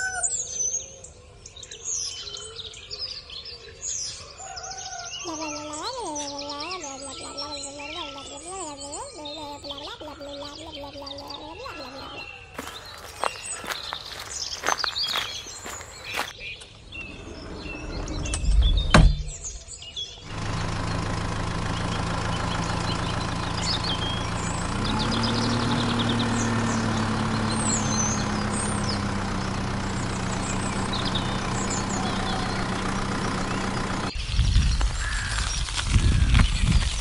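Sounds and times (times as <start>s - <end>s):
birds chirping: 0.0s - 37.0s
tractor engine running: 5.6s - 16.4s, 20.2s - 37.0s.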